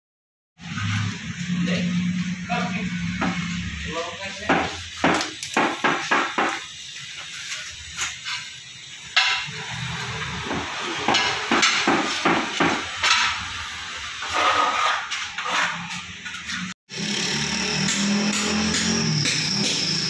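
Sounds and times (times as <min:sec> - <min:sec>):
hammer blows: 0:17.0 - 0:20.0.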